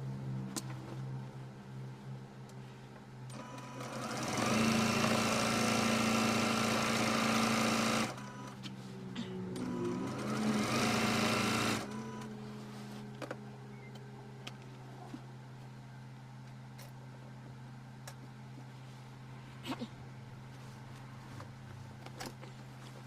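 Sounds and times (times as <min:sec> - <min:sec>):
sewing machine stitching: 0:03.3 - 0:08.4, 0:09.6 - 0:12.3.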